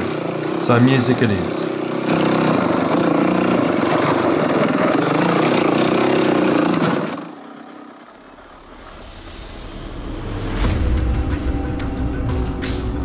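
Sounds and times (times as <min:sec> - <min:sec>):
dirt bike engine running: 0:00.0 - 0:13.0
music: 0:09.4 - 0:13.0.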